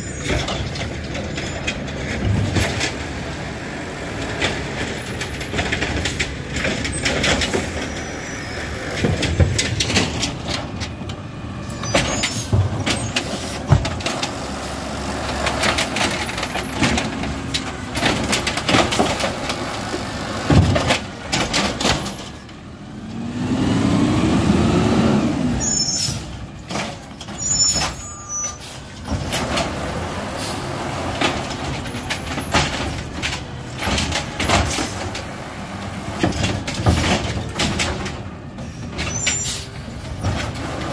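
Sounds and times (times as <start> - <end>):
garbage truck engine running: 0.0 - 40.9
clanks and knocks: 8.9 - 11.2, 11.8 - 14.5, 15.3 - 22.6, 31.1 - 35.3, 36.0 - 39.4.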